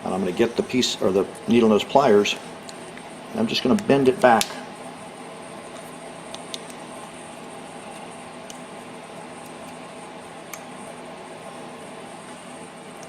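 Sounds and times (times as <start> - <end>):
steady room hum: 0.0 - 13.0.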